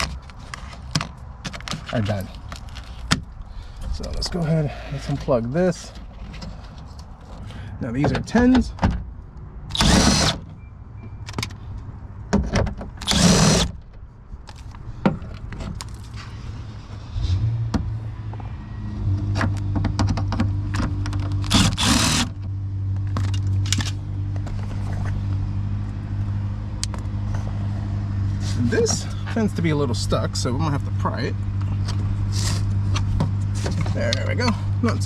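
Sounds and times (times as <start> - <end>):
tool bursts: 9.7 - 10.5, 13.0 - 13.8, 21.4 - 22.4.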